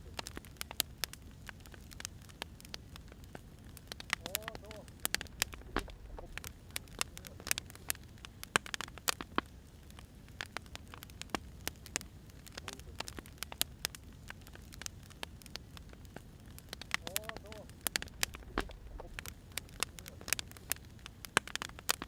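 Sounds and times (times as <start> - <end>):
wood fire crackling: 0.0 - 22.0
low steady rumble: 2.5 - 8.4, 13.6 - 21.3.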